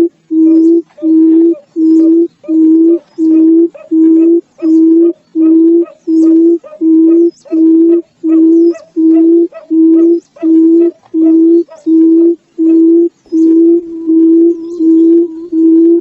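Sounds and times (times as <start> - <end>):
bird low even hoots: 0.0 - 16.0
faint high bird chirps: 0.0 - 16.0.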